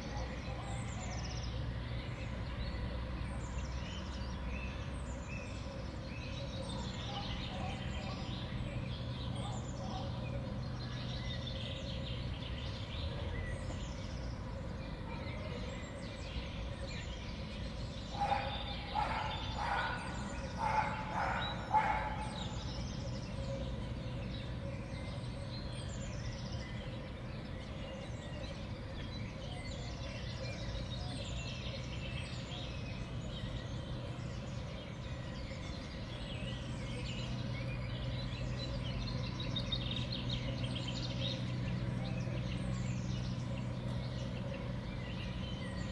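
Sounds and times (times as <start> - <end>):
songbirds chirping: 0.0 - 45.9
harsh bird calls: 18.0 - 22.9.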